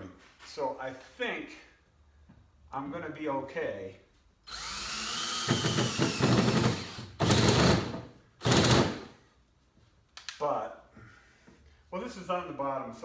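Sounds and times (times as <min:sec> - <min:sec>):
power drill whining into wood: 0:04.5 - 0:09.1.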